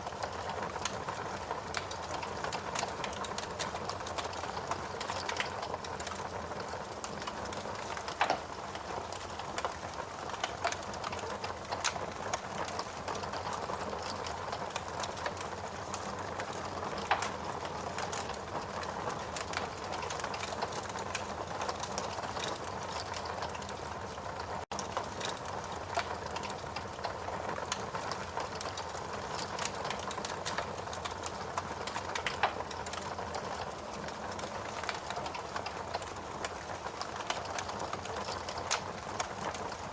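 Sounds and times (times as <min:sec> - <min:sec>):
wood fire crackling: 0:00.0 - 0:39.9
loud fire pops: 0:07.5 - 0:15.4, 0:29.6 - 0:33.7.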